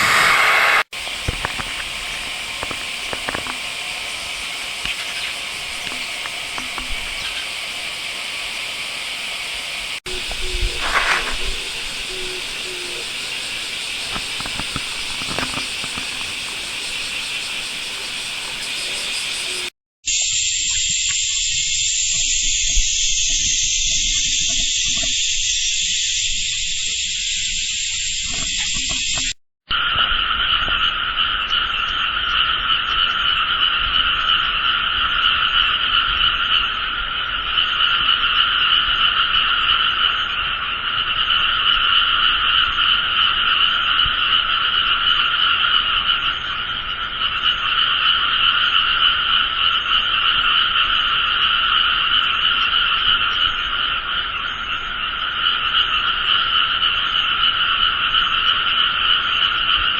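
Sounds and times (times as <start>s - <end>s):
high hiss: 0.0s - 29.4s
chorus of frogs calling: 0.0s - 59.9s.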